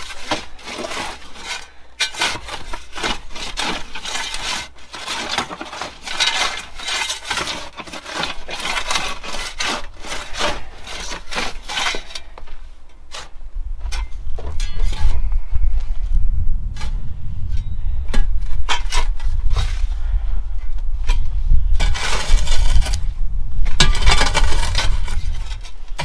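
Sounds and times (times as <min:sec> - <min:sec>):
shovels scraping dirt: 0:00.0 - 0:15.2, 0:16.7 - 0:20.2, 0:21.0 - 0:26.0.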